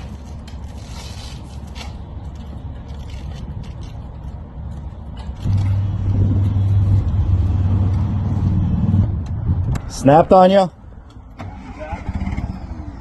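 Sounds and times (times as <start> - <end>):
vehicle engine hum: 0.0 - 13.0
low rumble: 5.4 - 10.1.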